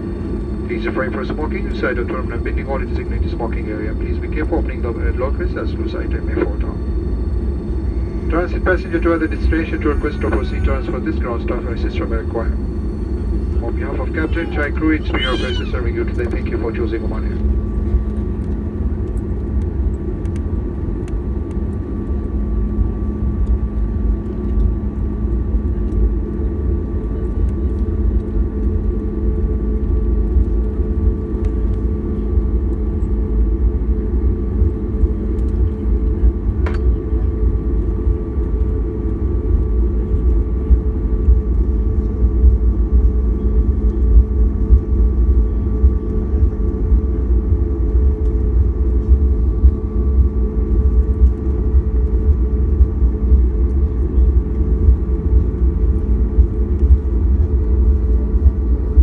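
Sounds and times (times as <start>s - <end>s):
aircraft cabin engine rumble: 0.0s - 59.0s
constant hum: 0.0s - 59.0s.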